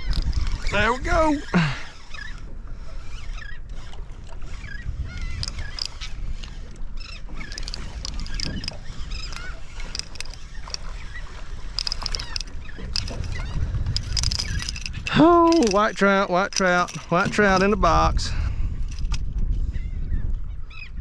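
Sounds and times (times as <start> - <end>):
seabirds crying: 0.0 - 3.9, 4.5 - 13.7
low rumble of wind and water: 0.0 - 21.0.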